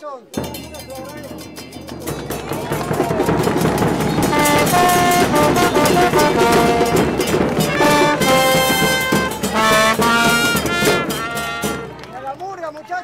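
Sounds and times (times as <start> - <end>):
drum hits: 0.3 - 12.1
brass band playing: 2.2 - 12.1.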